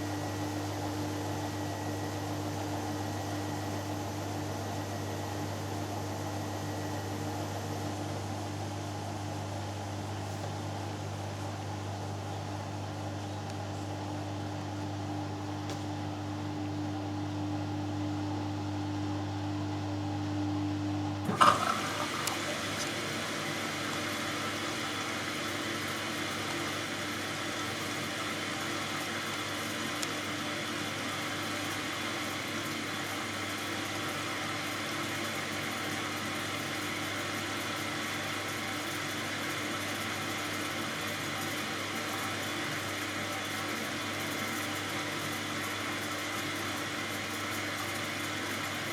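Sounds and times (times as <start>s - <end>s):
washing machine motor hum: 0.0s - 48.9s
water rushing into drum: 21.2s - 22.8s.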